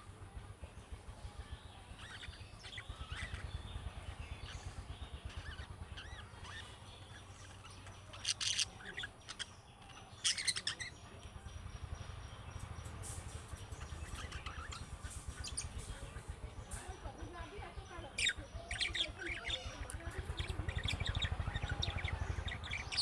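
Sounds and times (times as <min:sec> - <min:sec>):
steady low hum: 0:00.0 - 0:23.0
shrill chatter: 0:00.3 - 0:23.0
budgerigars chirping and warbling: 0:01.0 - 0:23.0.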